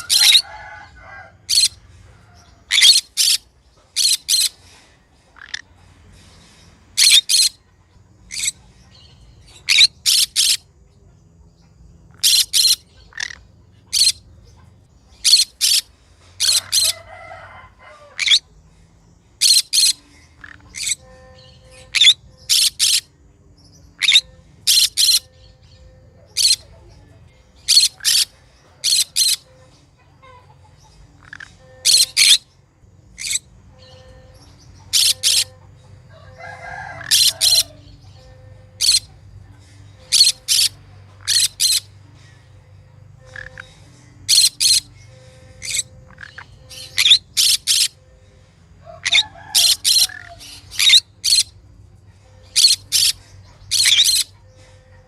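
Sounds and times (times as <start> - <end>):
parrot chirping: 0.0 - 1.8, 2.4 - 4.6, 7.0 - 7.6, 8.3 - 10.7, 12.1 - 18.5, 19.4 - 23.1, 23.9 - 26.8, 27.6 - 32.5, 33.1 - 42.0, 42.8 - 48.0, 48.9 - 51.6, 52.4 - 54.4.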